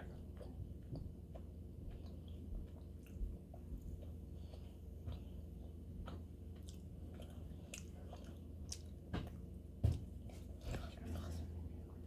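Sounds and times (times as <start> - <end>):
person chewing: 0.0 - 9.4.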